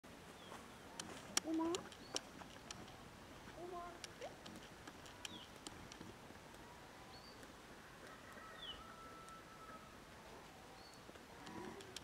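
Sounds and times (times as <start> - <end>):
distant bird chirps: 3.7 - 5.9.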